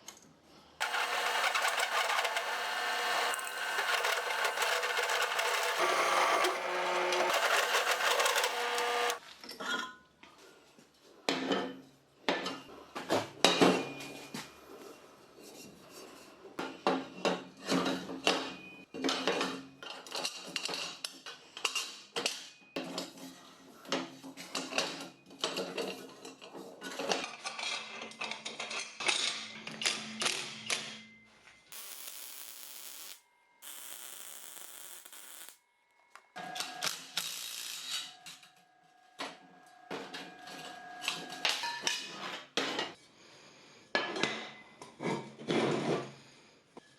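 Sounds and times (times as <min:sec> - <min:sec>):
steady machine noise: 0:00.8 - 0:09.2, 0:31.8 - 0:35.6.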